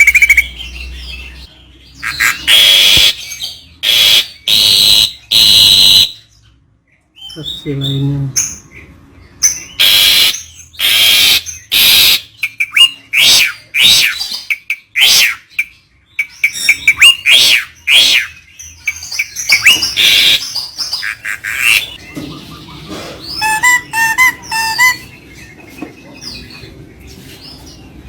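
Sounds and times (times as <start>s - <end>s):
bird chirps and whistles: 0.0s - 1.0s, 2.0s - 6.3s, 9.4s - 22.0s, 23.3s - 25.2s
harsh rasping bird calls: 0.0s - 6.6s, 7.2s - 26.7s.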